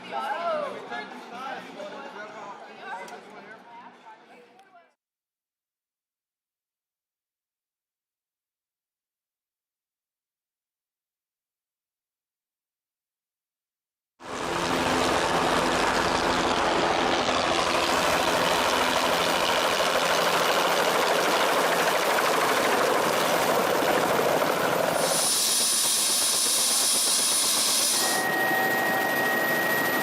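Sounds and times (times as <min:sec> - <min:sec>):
engine running: 0:14.2 - 0:25.2.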